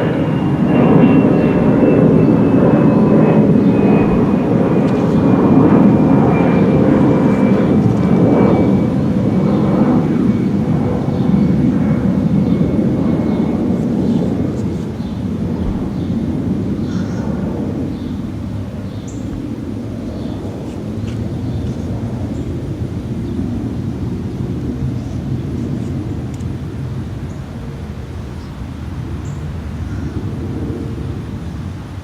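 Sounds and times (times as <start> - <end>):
jet airliner rumble and whine: 0.0 - 32.0.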